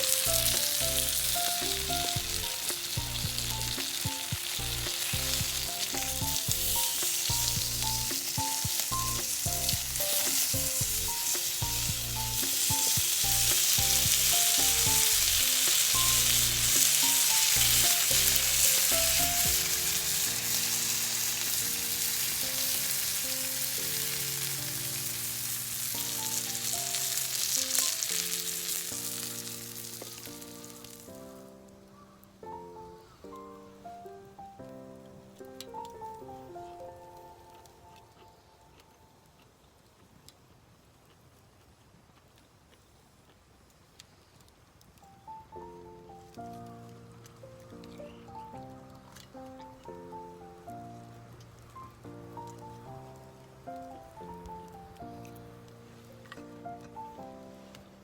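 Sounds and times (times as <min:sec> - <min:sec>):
meat sizzling over campfire: 0:00.0 - 0:58.0
background music with bass: 0:00.2 - 0:08.2, 0:08.9 - 0:20.8.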